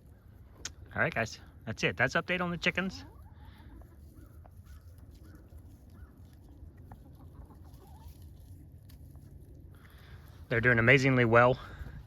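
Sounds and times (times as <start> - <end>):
chickens clucking softly: 0.0 - 9.7
low steady rumble: 3.4 - 12.0.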